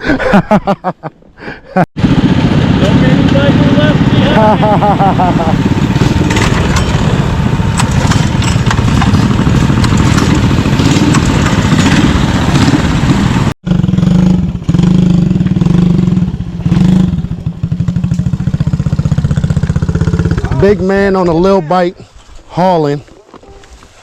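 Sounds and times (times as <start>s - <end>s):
mini bike engine running: 2.0s - 20.7s.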